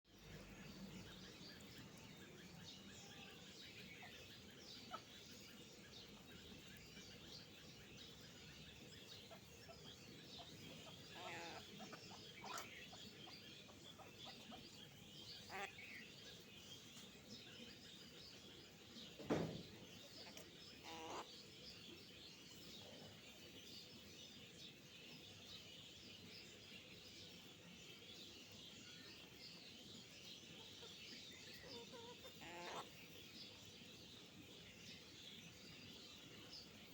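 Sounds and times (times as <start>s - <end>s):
small birds chirping: 0.0s - 36.9s
sharp knock: 19.2s - 19.6s.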